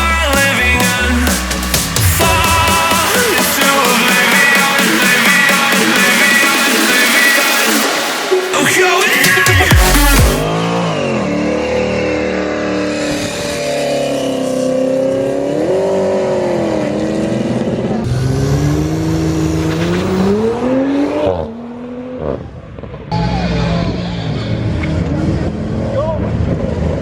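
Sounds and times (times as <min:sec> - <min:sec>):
sports car engines revving: 0:09.7 - 0:27.0.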